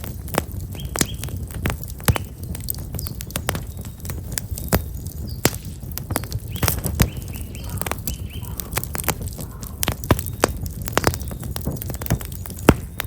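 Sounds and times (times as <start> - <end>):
open fire crackling: 0.0 - 13.0
small bird chirping: 0.7 - 1.3, 6.1 - 11.5.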